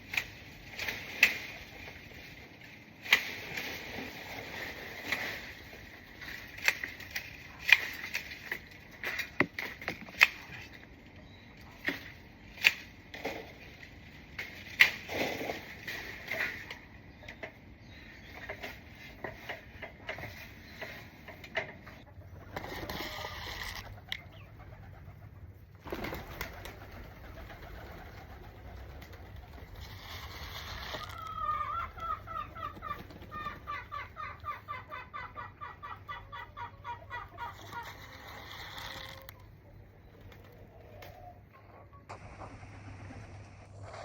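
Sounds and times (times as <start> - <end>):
pigeons and doves cooing: 40.0 - 42.1.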